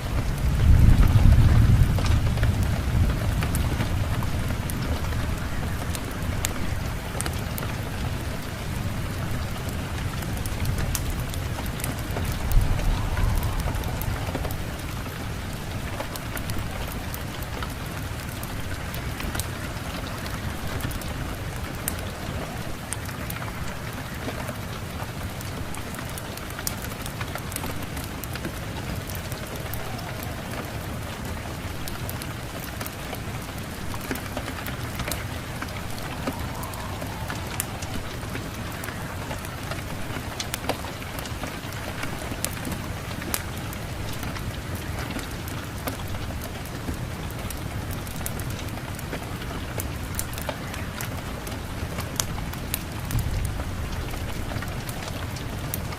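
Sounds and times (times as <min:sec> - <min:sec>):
sharp crackles and ticks: 0:00.0 - 0:55.9
steady rain falling: 0:00.0 - 0:55.9
low rumble: 0:11.1 - 0:16.8, 0:34.8 - 0:40.6.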